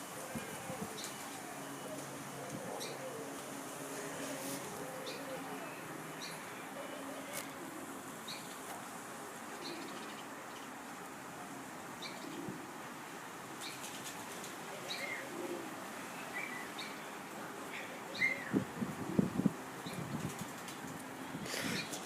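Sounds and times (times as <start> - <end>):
wing beats fluttering: 13.7 - 14.6, 20.0 - 21.1.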